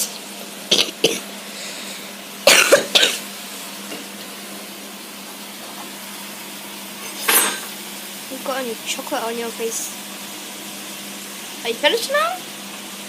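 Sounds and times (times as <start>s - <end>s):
person coughing: 0.7s - 1.2s, 2.5s - 3.2s.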